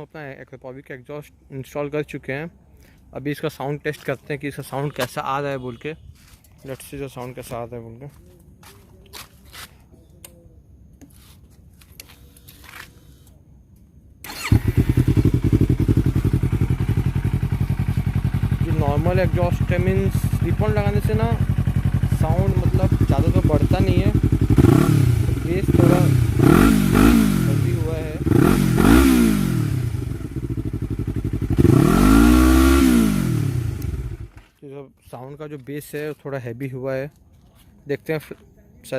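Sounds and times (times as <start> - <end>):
starter motor whirr: 14.2 - 15.3
motorcycle engine idling: 14.3 - 34.4.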